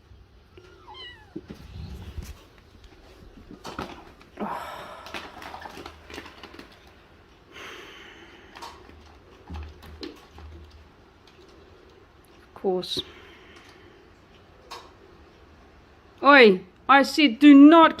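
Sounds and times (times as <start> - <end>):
cat meowing: 0.5 - 1.5
rustling and scratching: 0.6 - 4.4, 8.5 - 12.4.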